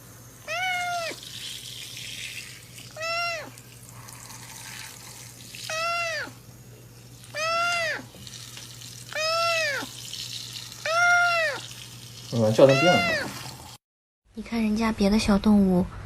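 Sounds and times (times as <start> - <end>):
cat meowing: 0.5 - 1.2, 3.0 - 3.6, 5.7 - 6.4, 7.3 - 8.2, 9.1 - 9.9, 10.8 - 11.7, 12.6 - 13.4.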